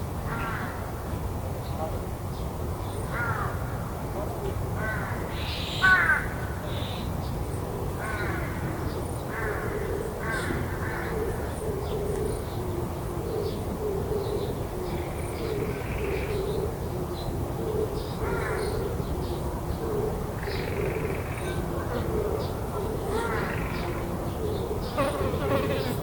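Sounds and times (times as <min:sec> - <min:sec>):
crows cawing: 0:03.2 - 0:03.7, 0:04.8 - 0:06.4, 0:08.0 - 0:08.7.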